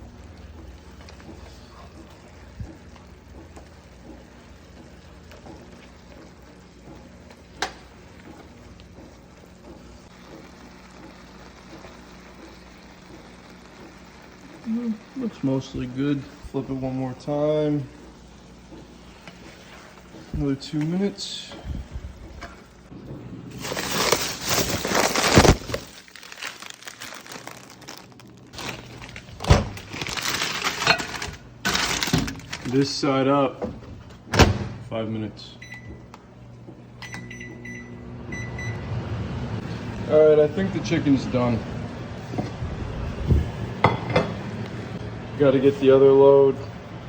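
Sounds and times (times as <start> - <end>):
chicken sizzling in a pan: 10.1 - 17.8
crinkling rustling handling noise: 23.5 - 33.2.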